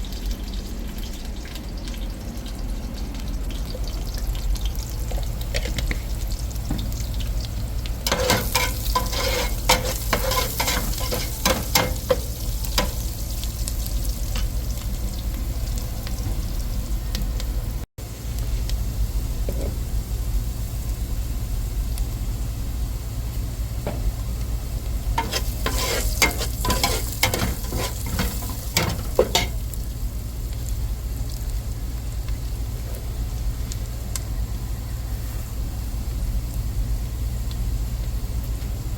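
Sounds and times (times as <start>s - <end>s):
food sizzling in a pan: 0.0s - 38.9s
utensil scraping and clinking: 8.1s - 12.2s, 25.2s - 29.6s.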